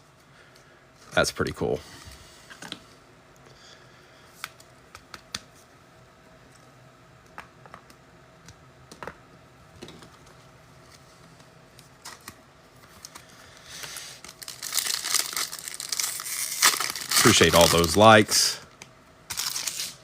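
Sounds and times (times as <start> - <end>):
trading cards being shuffled: 9.9 - 18.2, 19.3 - 20.0.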